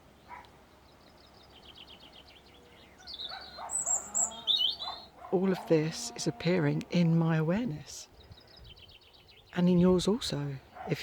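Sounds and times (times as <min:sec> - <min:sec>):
songbirds trilling and chirping: 0:00.0 - 0:11.0
distant dogs barking: 0:00.2 - 0:00.6, 0:02.9 - 0:06.4, 0:10.6 - 0:11.0.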